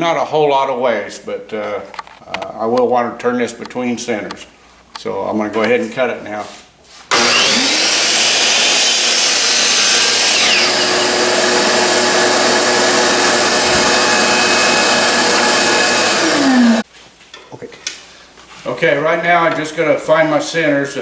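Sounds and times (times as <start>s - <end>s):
miter saw cutting wood: 7.1s - 16.8s.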